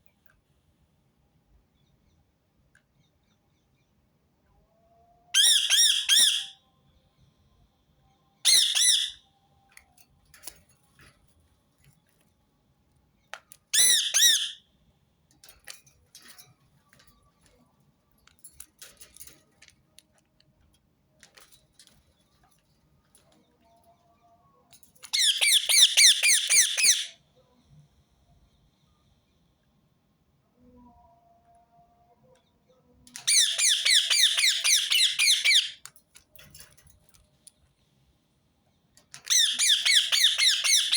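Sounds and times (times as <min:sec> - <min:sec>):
parakeet screeching: 0:05.4 - 0:06.5, 0:08.5 - 0:09.2, 0:13.8 - 0:14.6, 0:25.2 - 0:27.1, 0:33.2 - 0:35.8, 0:39.3 - 0:40.9
faint clicks and scratches: 0:15.3 - 0:25.1.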